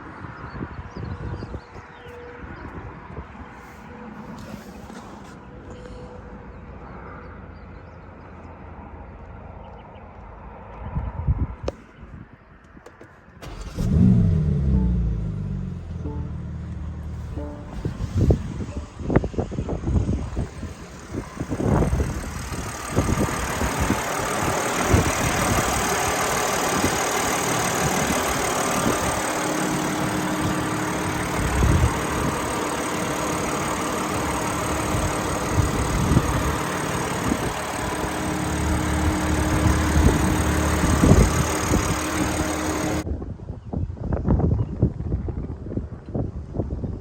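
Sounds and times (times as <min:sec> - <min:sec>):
car engine idling: 0:13.4 - 0:43.0.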